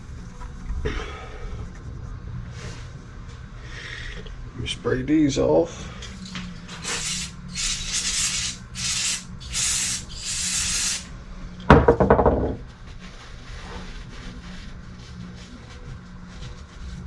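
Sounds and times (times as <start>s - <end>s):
aerosol spray can hissing: 6.8s - 11.1s.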